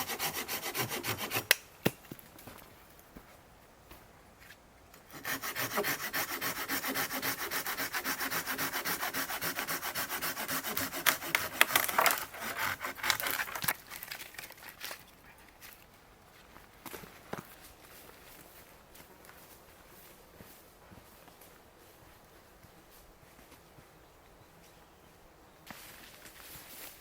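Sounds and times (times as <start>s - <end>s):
hand saw cutting wood: 0.0s - 1.7s, 5.1s - 14.1s.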